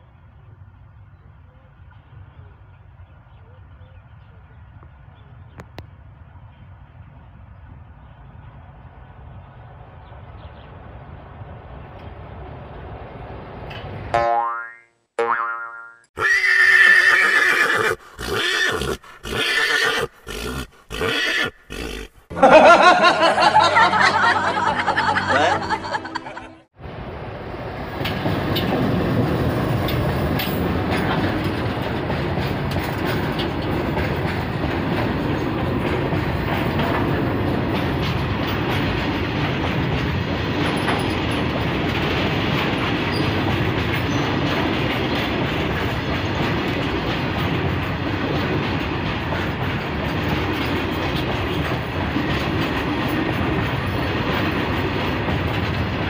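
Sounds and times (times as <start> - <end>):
freight train wheels clattering: 27.5 - 56.0.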